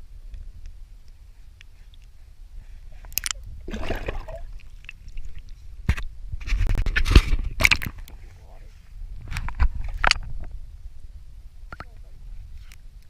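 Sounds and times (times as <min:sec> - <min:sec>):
wind rumble on microphone: 0:00.0 - 0:13.0
water splashing: 0:03.2 - 0:05.5.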